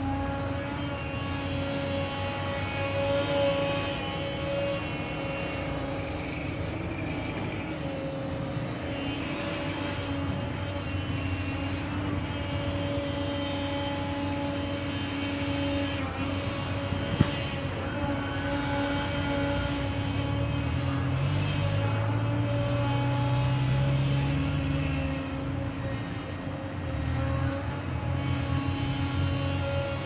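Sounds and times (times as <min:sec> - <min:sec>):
diesel engine humming: 0:00.0 - 0:30.0
steady whine: 0:00.0 - 0:30.0.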